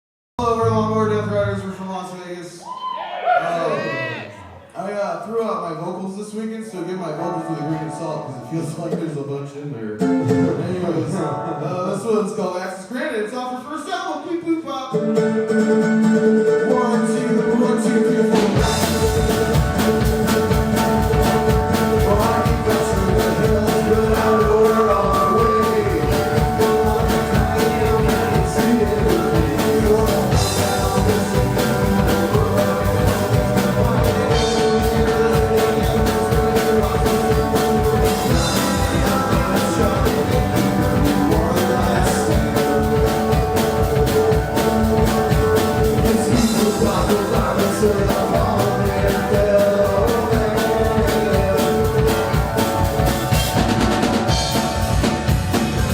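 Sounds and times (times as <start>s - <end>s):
rock band playing: 10.0s - 12.2s, 15.0s - 55.9s
drum beat: 18.3s - 55.9s.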